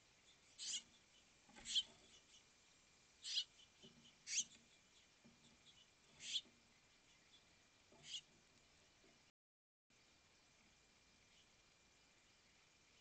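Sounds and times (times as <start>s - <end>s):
songbird harsh chirps: 0.2s - 2.5s, 3.2s - 8.3s.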